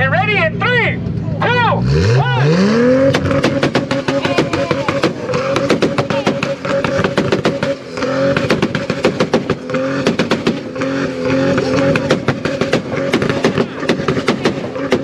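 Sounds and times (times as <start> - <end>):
car engines held at rev limiter: 0.0 - 15.0
exhaust pops and bangs: 2.9 - 15.0.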